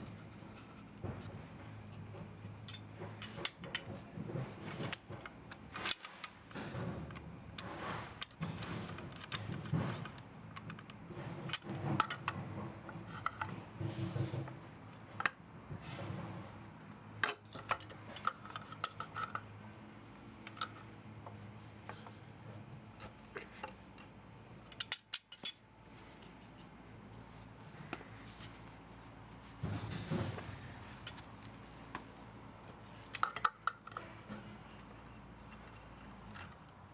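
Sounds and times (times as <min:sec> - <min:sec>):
metal parts and tools clinking: 0:02.6 - 0:04.0, 0:23.0 - 0:25.7, 0:32.9 - 0:36.9.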